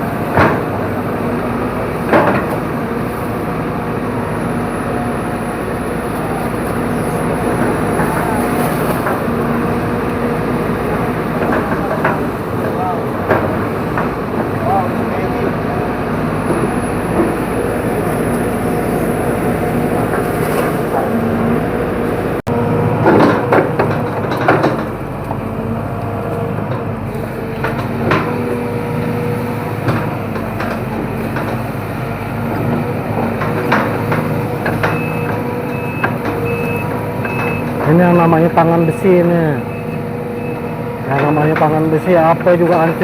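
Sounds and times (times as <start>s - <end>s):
excavator diesel engine running: 0.0s - 43.0s
travel alarm beeps: 34.9s - 41.7s.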